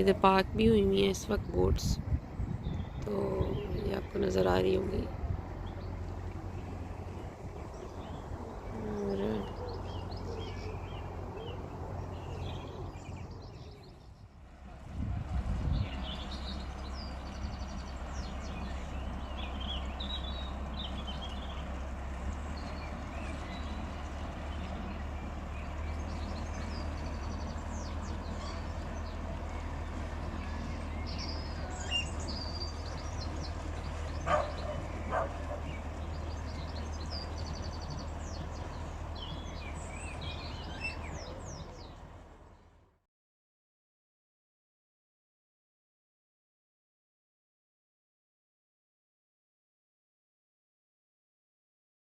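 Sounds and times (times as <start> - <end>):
small birds chirping: 0.0 - 14.5, 15.6 - 42.8.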